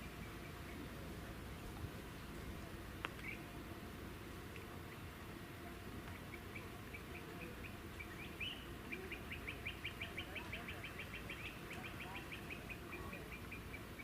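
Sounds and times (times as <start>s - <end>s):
low steady outdoor hiss: 0.0s - 14.0s.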